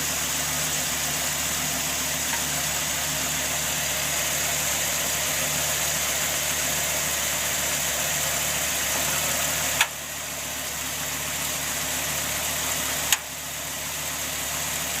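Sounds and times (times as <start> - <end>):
car engine idling: 0.0 - 15.0
sharp exhaust clicks: 9.8 - 10.0, 13.1 - 13.3.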